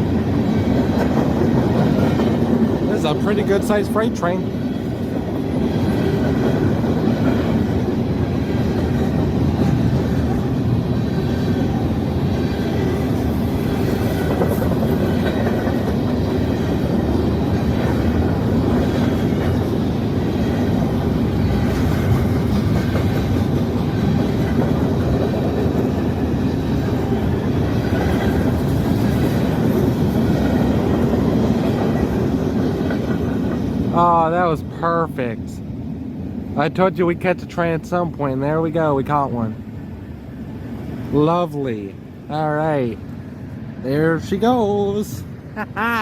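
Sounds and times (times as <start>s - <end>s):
freight train wheels clattering: 0.0s - 34.0s.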